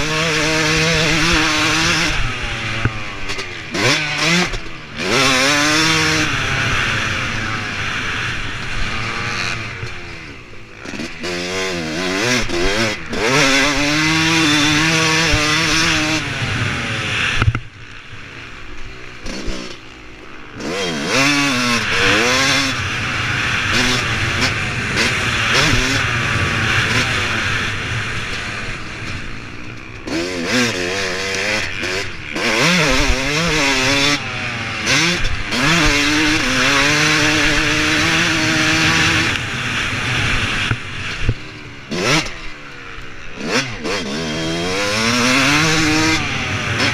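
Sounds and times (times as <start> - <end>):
motocross engine revving: 0.0 - 46.9.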